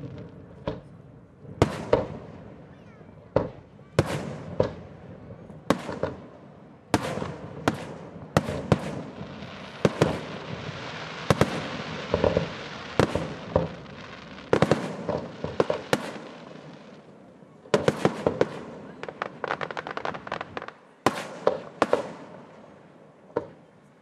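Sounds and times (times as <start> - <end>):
firework shells booming: 1.6 - 2.4, 3.3 - 5.0, 5.6 - 17.0, 17.7 - 22.5
steady hiss: 6.2 - 24.0.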